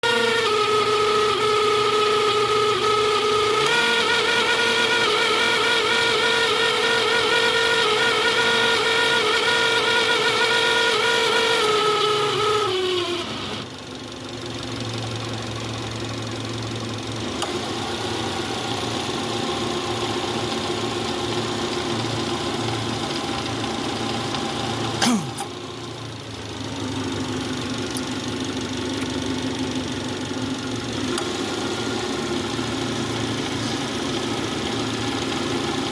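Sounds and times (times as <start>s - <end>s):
compressor whine: 0.0s - 13.8s, 23.8s - 25.9s
car engine idling: 0.1s - 35.9s
sharp click: 25.0s - 25.6s.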